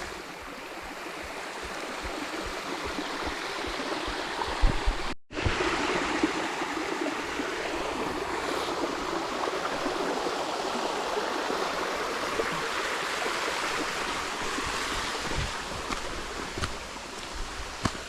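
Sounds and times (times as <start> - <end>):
creek water running: 0.0 - 18.0
soft low thumps: 14.5 - 18.0.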